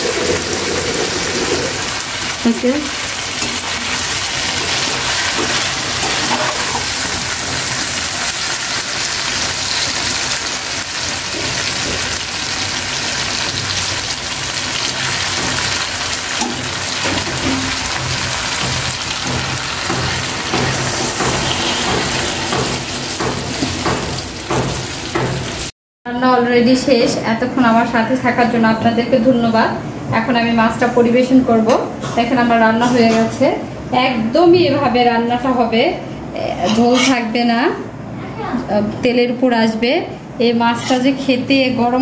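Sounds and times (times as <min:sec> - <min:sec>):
curry sizzling and bubbling: 0:00.0 - 0:25.8
metal spatula scraping pan: 0:03.4 - 0:07.1, 0:19.4 - 0:23.8, 0:36.6 - 0:37.3, 0:40.8 - 0:41.2.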